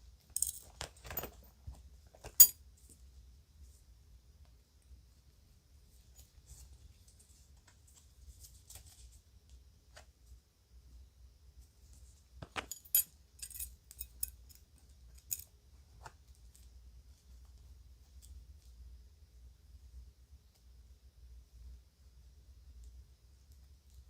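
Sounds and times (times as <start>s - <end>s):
jewelry clicking and clinking: 0.3s - 1.5s, 2.2s - 2.6s, 12.4s - 15.5s.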